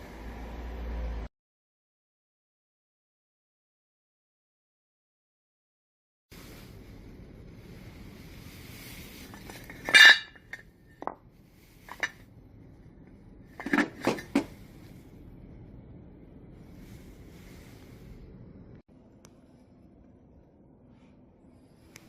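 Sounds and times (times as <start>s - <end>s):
metal objects clinking: 9.4s - 10.6s.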